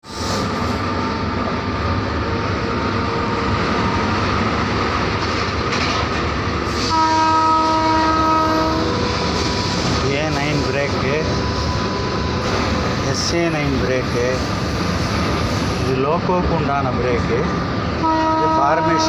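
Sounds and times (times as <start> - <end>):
locomotive rumble and rattle: 0.2 - 19.0
multi-tone train horn: 6.7 - 9.4, 18.0 - 19.0.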